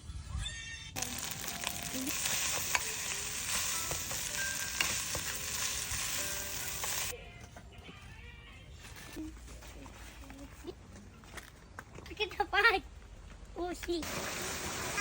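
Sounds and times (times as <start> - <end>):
food sizzling in hot oil: 1.0 - 7.1, 14.0 - 15.0.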